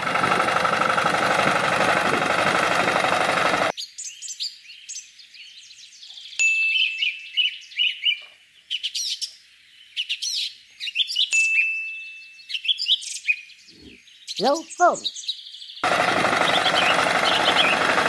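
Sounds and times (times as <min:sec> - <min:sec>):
small birds chirping: 0:03.7 - 0:18.0
bird whistle: 0:16.5 - 0:17.8.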